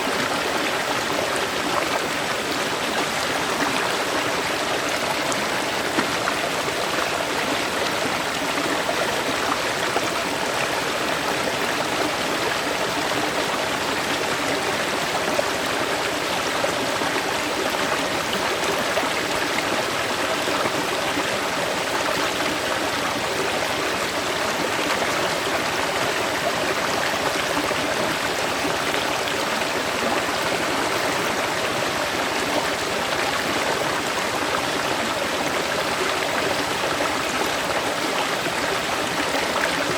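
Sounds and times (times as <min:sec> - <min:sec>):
river water babbling over rocks: 0:00.0 - 0:39.9.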